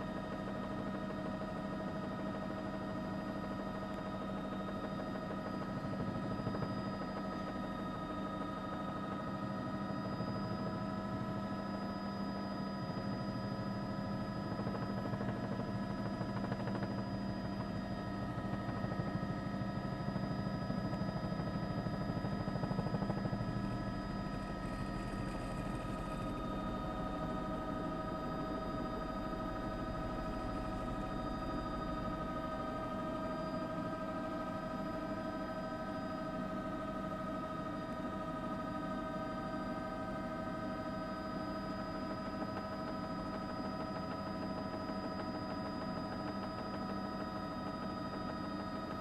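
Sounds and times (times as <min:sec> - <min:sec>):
pulsing mechanical drone: 0:21.2 - 0:34.8.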